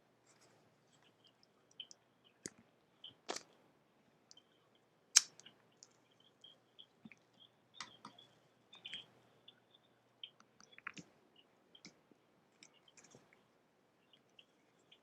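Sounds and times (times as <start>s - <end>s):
keyboard and mouse clicks: 10.3s - 11.1s.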